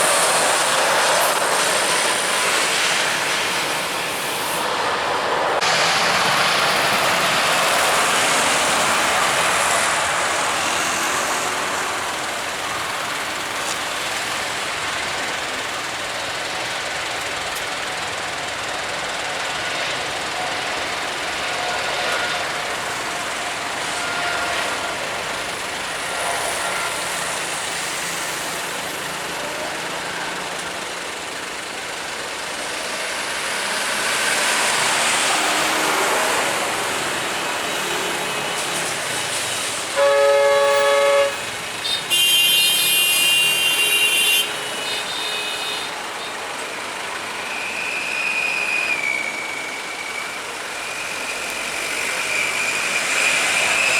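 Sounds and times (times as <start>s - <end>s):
vehicle noise: 0.0s - 53.9s
vehicle horn blasts: 21.4s - 28.2s, 39.9s - 46.4s.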